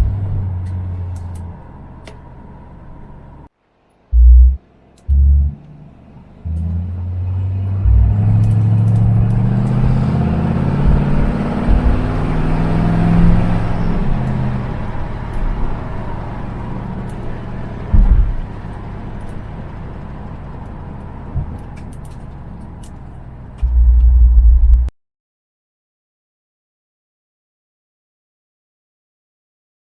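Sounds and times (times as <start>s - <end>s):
dull low thumps: 0.0s - 1.0s, 4.1s - 15.8s, 17.9s - 18.6s, 23.6s - 24.9s
car engine under load: 0.0s - 24.9s.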